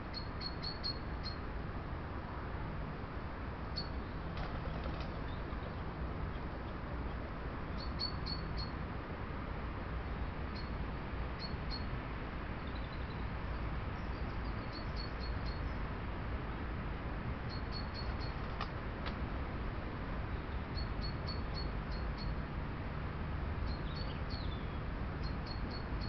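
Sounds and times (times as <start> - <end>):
background hiss and low rumble: 0.0 - 26.0
small bird chirping: 0.1 - 1.4, 3.8 - 6.4, 7.7 - 8.8, 10.5 - 10.8, 11.4 - 11.9, 12.6 - 13.3, 14.0 - 15.8, 17.5 - 18.6, 20.3 - 22.4, 23.6 - 26.0.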